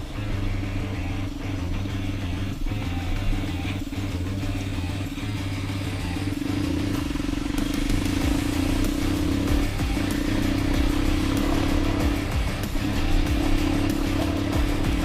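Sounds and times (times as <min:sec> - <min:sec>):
background music with bass: 0:00.0 - 0:15.0
dirt bike engine running: 0:00.0 - 0:15.0.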